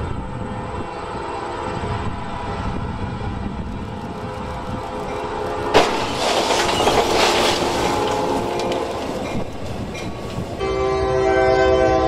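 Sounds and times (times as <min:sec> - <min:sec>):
train rushing past: 0:00.0 - 0:12.0
sharp clanks and rattles: 0:03.8 - 0:10.6
train air horn: 0:07.6 - 0:09.1, 0:10.6 - 0:12.0.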